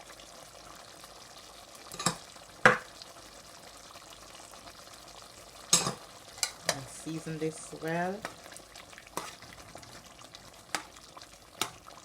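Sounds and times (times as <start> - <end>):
sauce bubbling in a pot: 0.0 - 12.0
sharp knocks against pot: 2.0 - 2.9.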